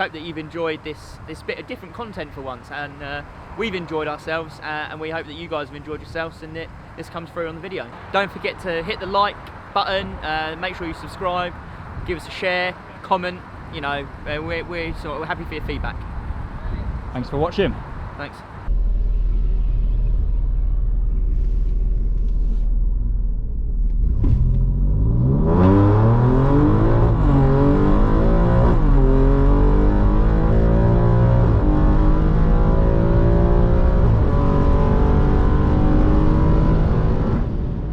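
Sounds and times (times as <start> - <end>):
car engine accelerating hard: 19.9 - 37.8.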